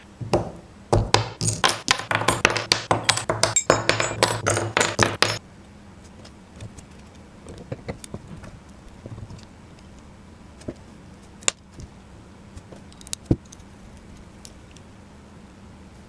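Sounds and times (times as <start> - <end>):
metal pieces clinking: 1.4 - 5.4.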